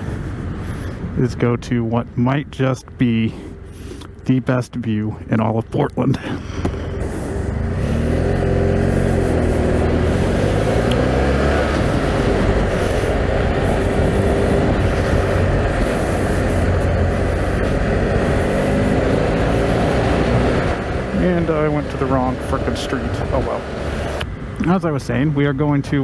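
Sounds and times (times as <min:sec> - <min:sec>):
steady rushing noise: 0:00.0 - 0:03.9, 0:04.8 - 0:26.0
motorcycle engine running: 0:05.2 - 0:25.3.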